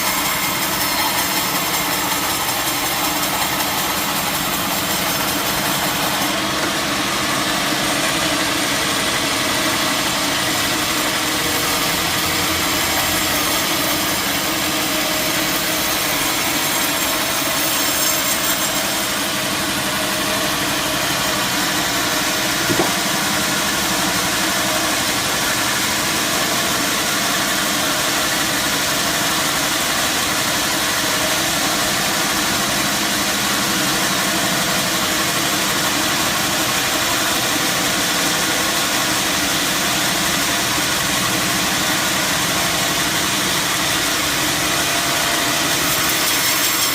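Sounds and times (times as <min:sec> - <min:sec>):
short knock: 0:22.6 - 0:23.1.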